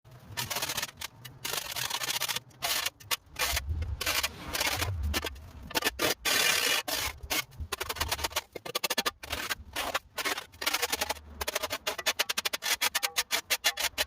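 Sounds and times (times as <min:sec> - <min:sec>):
rough scraping and rubbing: 0:00.1 - 0:14.0.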